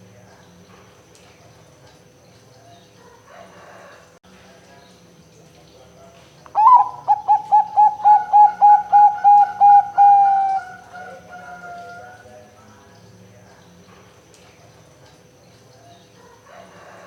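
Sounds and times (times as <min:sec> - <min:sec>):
dove cooing: 0:06.6 - 0:12.2.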